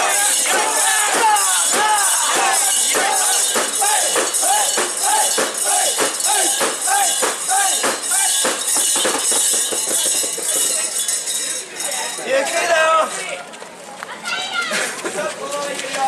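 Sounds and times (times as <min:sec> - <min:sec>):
group chanting: 0:00.0 - 0:07.8
metal fittings jingling: 0:00.0 - 0:12.7.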